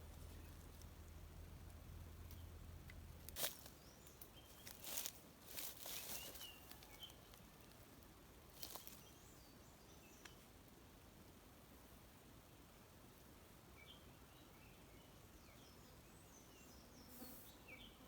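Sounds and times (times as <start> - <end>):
rustling handling noises: 3.2 - 3.8, 4.4 - 7.8.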